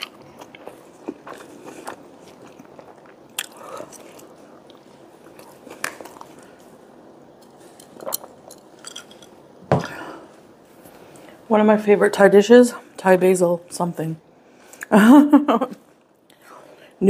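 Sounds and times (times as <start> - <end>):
person chewing food: 0.0 - 10.0.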